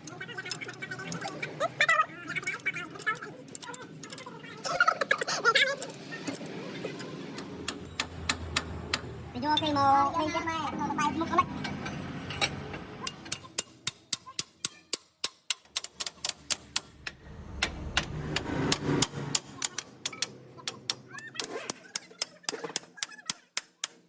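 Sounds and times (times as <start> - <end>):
person speaking: 0.0 - 7.3.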